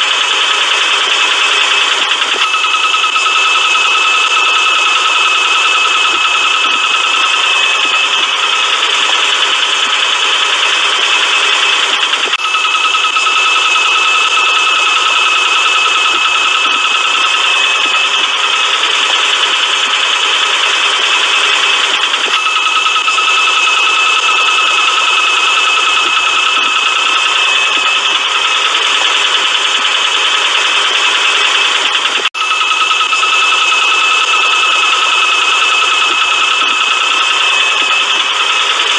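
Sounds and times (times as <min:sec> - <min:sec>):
engine idling with rattling: 0:00.0 - 0:38.9
steady high whine: 0:00.0 - 0:38.9.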